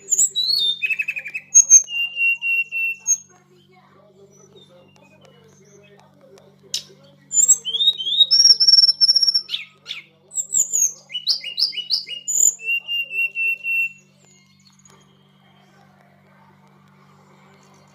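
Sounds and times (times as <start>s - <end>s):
songbird singing whistled phrases: 0.0s - 3.6s, 6.8s - 15.8s.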